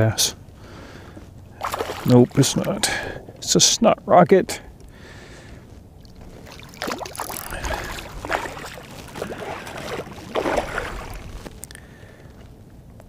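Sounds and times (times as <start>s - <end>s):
fish splashing in water: 1.5s - 3.5s, 6.0s - 11.8s.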